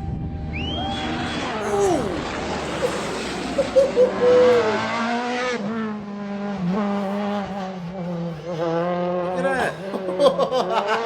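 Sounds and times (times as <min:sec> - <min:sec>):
rally car engine: 0:00.3 - 0:11.0
tyres squealing: 0:01.6 - 0:04.8.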